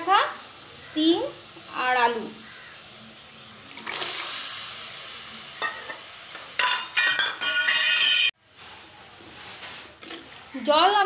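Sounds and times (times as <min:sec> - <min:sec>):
vegetables sizzling in a pan: 0:00.0 - 0:11.0
scraping and clattering on pan: 0:05.6 - 0:08.4.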